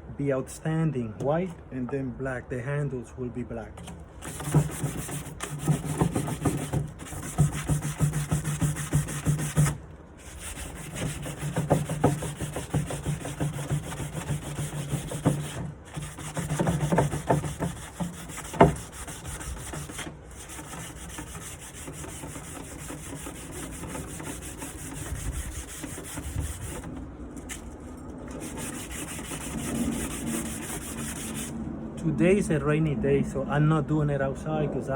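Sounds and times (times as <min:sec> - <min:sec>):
sandpaper rubbing on wood: 0:04.2 - 0:27.0, 0:28.3 - 0:31.5.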